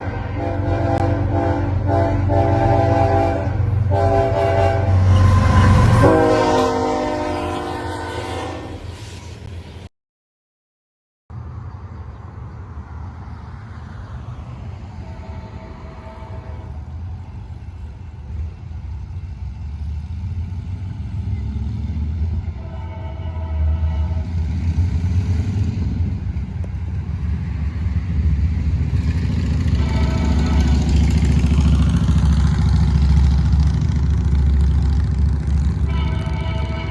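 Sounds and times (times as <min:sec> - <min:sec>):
locomotive air horn blasts: 0:00.0 - 0:09.1, 0:15.0 - 0:16.9, 0:22.5 - 0:24.4, 0:29.5 - 0:31.8, 0:35.8 - 0:36.9
train engine rumble: 0:00.0 - 0:09.9, 0:11.3 - 0:36.9.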